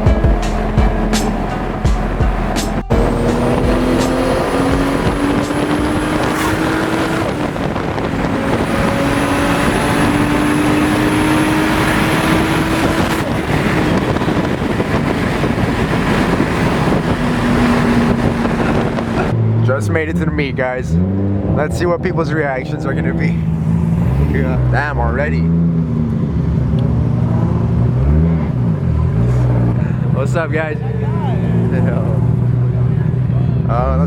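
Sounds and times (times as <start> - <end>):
wind rushing past: 0.0 - 19.6
car engine accelerating: 0.0 - 34.0.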